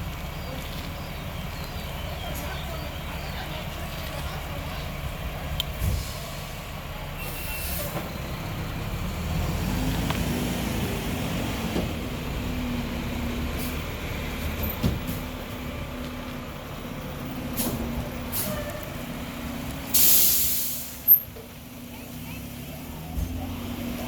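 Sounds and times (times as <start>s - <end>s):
garbage truck diesel engine: 0.0s - 24.0s
short air hisses: 17.6s - 18.7s, 19.9s - 21.3s.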